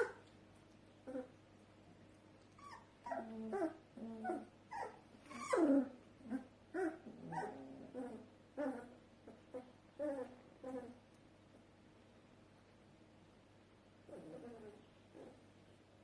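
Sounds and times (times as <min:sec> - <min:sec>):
puppies whimpering and yelping: 0:02.5 - 0:11.0.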